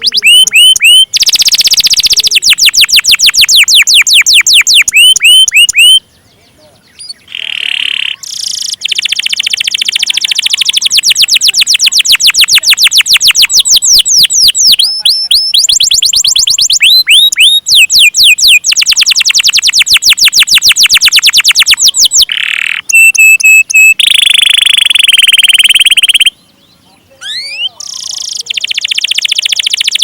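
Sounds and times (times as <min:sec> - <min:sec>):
canary singing trills: 0:00.0 - 0:30.0.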